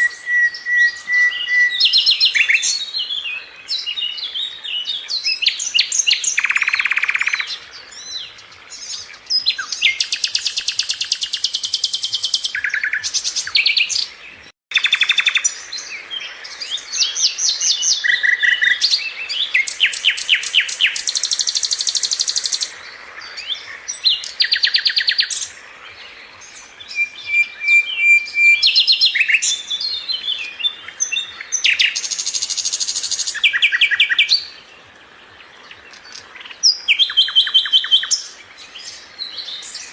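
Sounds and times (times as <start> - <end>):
flycatcher singing trills: 0.0 - 14.1.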